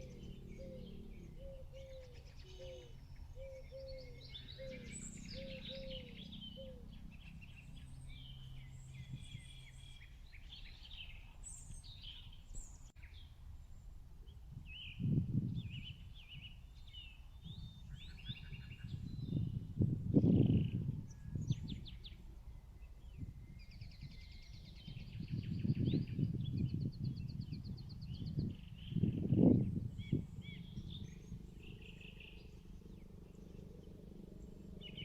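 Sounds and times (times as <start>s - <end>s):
low steady hum: 0.0s - 11.1s
birds chirping and twittering: 0.0s - 35.0s.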